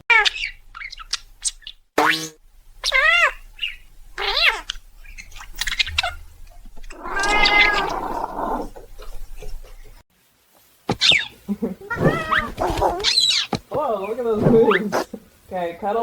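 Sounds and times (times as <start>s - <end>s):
cat meowing: 6.9s - 8.7s, 11.8s - 13.2s.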